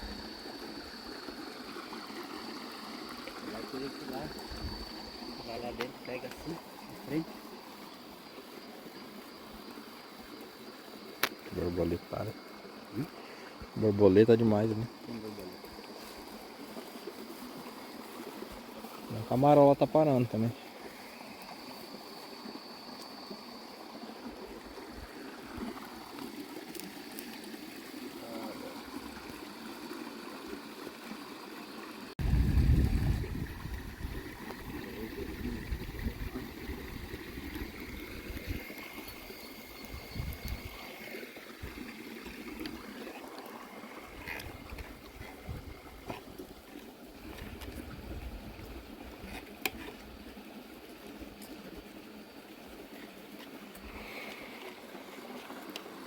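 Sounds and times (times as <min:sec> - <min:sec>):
steady hiss: 0:00.0 - 0:29.4
high insect drone: 0:00.0 - 0:56.0
low rumbling on microphone: 0:32.2 - 0:34.2
water lapping around boat: 0:40.3 - 0:51.9, 0:52.7 - 0:56.0.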